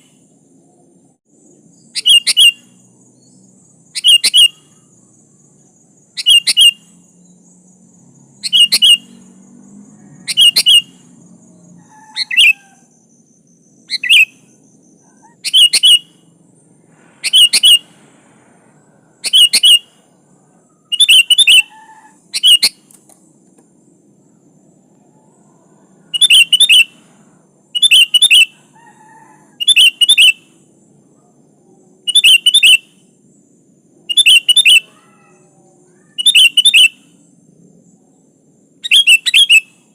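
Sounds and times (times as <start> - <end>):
bird calling: 1.6 - 9.4, 10.1 - 23.6, 24.2 - 30.6, 31.9 - 33.2, 34.0 - 37.3, 38.8 - 39.9.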